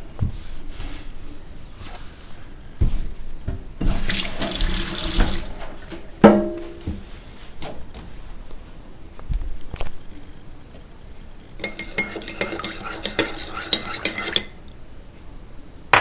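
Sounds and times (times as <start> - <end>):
water running at a sink: 3.8 - 5.9
cup clinking: 11.6 - 14.6.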